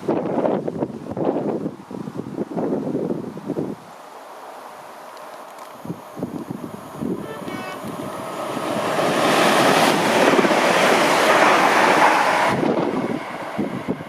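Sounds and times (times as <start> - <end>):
wind buffeting microphone: 0.0 - 4.0, 5.5 - 14.0
train rushing past: 4.2 - 14.0.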